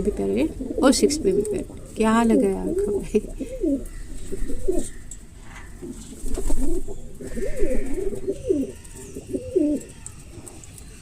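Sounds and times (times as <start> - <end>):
bird low wavering calls: 2.3 - 11.0.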